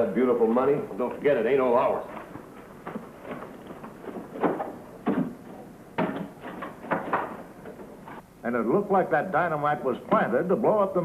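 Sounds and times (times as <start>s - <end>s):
knocks and thumps: 2.3s - 8.2s.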